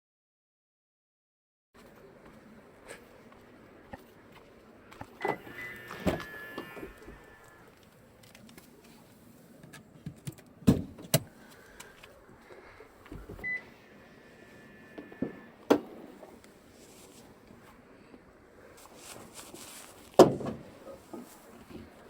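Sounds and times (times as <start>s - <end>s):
car door thuds: 20.2s - 20.7s.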